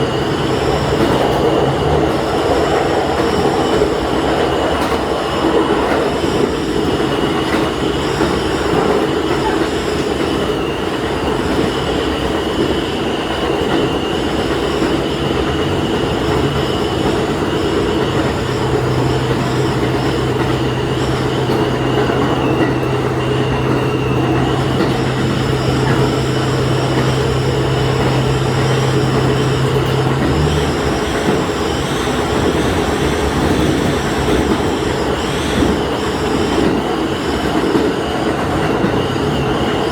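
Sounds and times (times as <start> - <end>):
low engine drone: 0.0 - 7.5, 15.2 - 36.9
railcar running on rails: 0.0 - 39.9.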